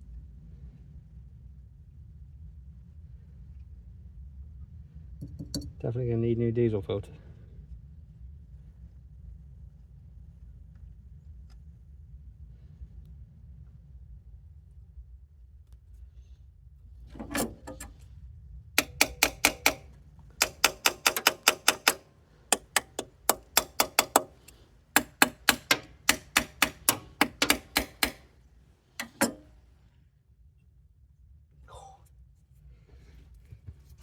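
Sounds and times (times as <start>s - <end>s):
hand tool clicking on metal: 17.1s - 18.0s, 18.8s - 28.3s, 28.9s - 29.6s.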